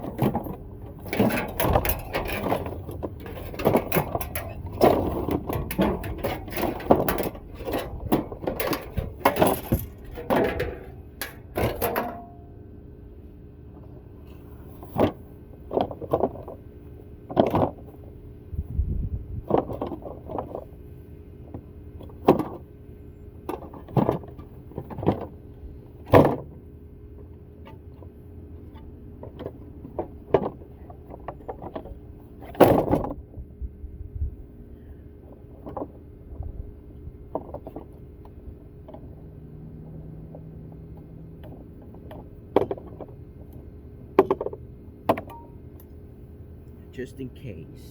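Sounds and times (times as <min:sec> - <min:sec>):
metal clanking and knocking: 0:00.0 - 0:12.5.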